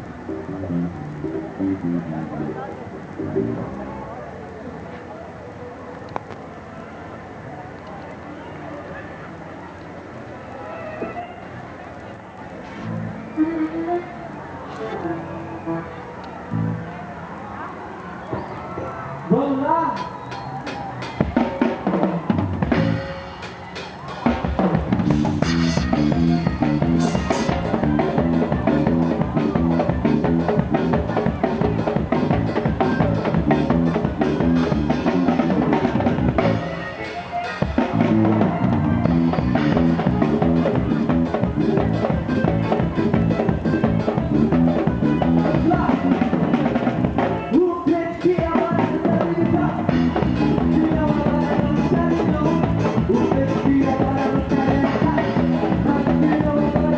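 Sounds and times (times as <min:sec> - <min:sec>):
band playing: 0:00.0 - 0:04.2, 0:12.7 - 0:17.3, 0:19.3 - 0:56.9
person singing: 0:13.3 - 0:16.0, 0:47.5 - 0:56.9
drum kit: 0:20.0 - 0:47.6, 0:48.2 - 0:56.9
drum kit hits and fills: 0:20.7 - 0:36.8.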